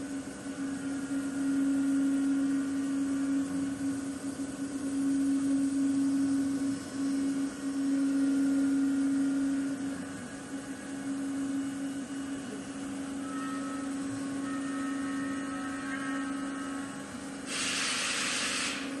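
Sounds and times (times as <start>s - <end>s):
cnc router humming: 0.0s - 19.0s
high whining tones: 11.7s - 18.9s
hiss: 17.5s - 19.0s.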